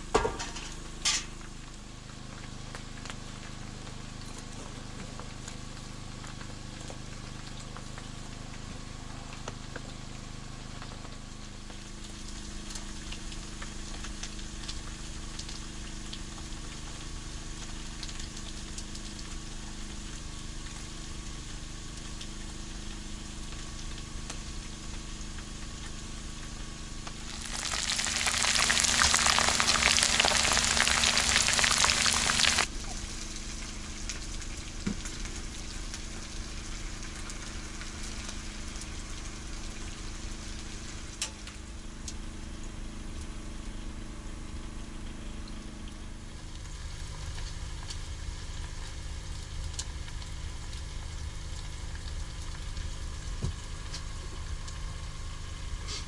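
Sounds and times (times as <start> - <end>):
food frying with low sizzle: 0.0 - 56.0
loud burst of sizzling: 11.4 - 41.5, 55.1 - 56.0.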